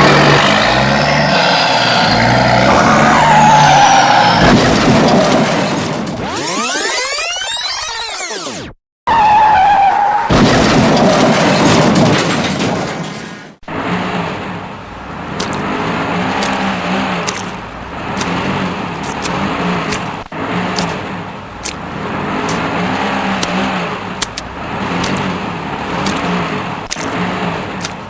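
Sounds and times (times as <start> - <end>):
engine revving: 0.0 - 8.8, 13.6 - 28.0.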